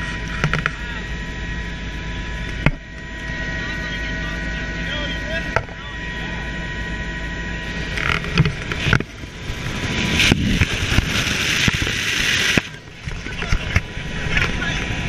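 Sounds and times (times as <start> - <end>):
helicopter rotor and engine: 0.0 - 15.0
high whine: 0.0 - 15.0
rushing of air: 8.8 - 12.8.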